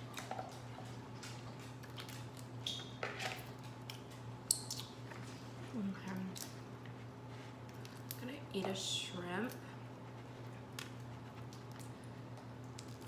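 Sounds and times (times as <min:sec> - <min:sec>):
wet chewing and squishing: 0:00.0 - 0:08.3, 0:09.5 - 0:13.0
steady low hum: 0:00.0 - 0:13.0.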